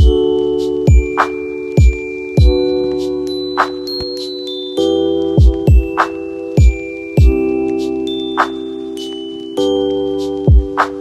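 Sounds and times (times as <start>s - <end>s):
electronic drum beat: 0.0s - 0.2s, 0.9s - 4.3s, 5.4s - 7.5s, 10.4s - 11.0s
synth chords with chimes: 0.0s - 11.0s.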